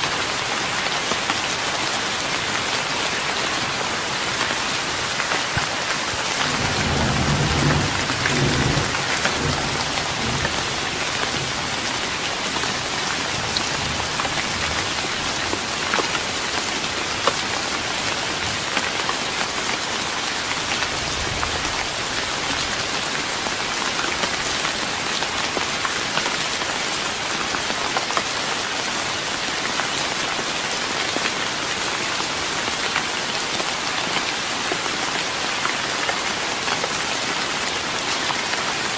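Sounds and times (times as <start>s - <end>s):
rain pattering on wooden deck: 0.0s - 38.9s
low rumble of thunder: 6.2s - 11.8s.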